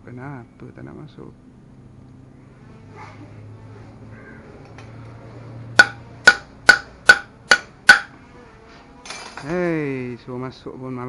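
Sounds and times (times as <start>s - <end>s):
metallic hammer taps: 5.8s - 8.1s.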